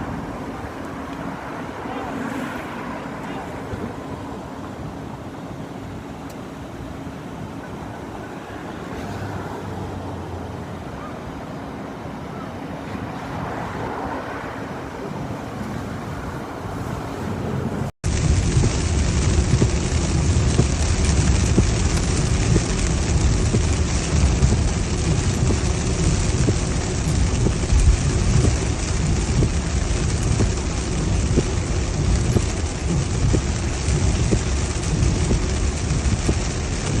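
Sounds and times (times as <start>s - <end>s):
heavy rain pouring: 0.0s - 6.0s, 16.2s - 37.0s
wind gusts buffeting microphone: 11.9s - 37.0s.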